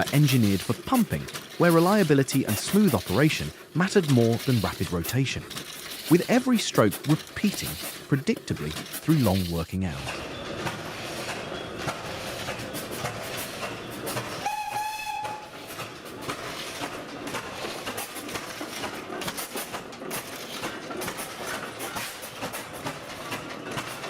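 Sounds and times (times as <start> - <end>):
clattering steam machinery: 0.0 - 24.0
steam whistle blast: 14.4 - 15.5.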